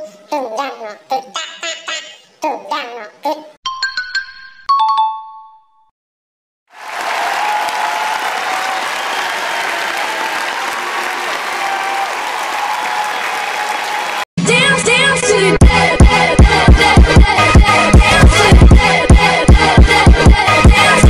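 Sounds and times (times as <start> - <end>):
crowd applauding: 6.7 - 14.3.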